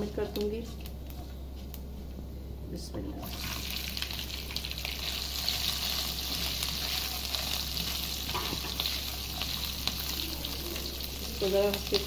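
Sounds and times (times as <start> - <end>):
potatoes sizzling in hot oil: 3.2 - 12.0.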